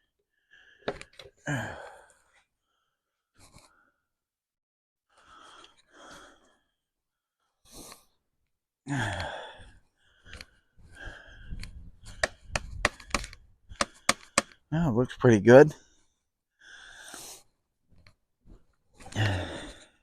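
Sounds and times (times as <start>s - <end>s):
man breathing: 5.1s - 6.8s, 8.9s - 14.7s, 15.8s - 20.0s
clicks and knocks of parts: 11.6s - 14.6s.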